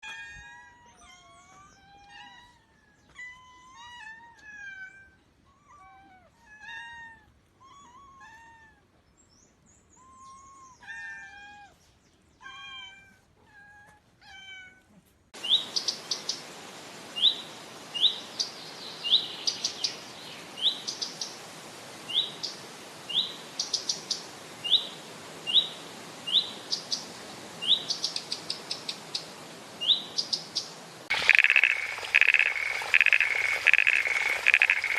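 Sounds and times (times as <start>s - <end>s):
small bird chirping: 27.7s - 34.9s
steady hiss: 30.4s - 34.9s.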